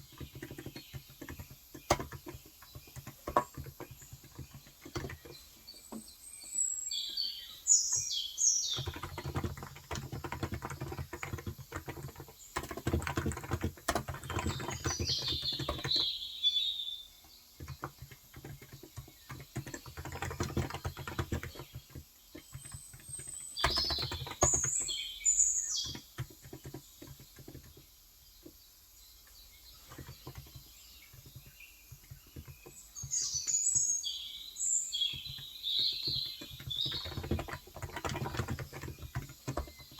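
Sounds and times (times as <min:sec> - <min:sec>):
small bird chirping: 0:00.0 - 0:39.9
soft keyboard keystrokes: 0:08.8 - 0:16.1, 0:17.6 - 0:24.9, 0:35.1 - 0:39.9.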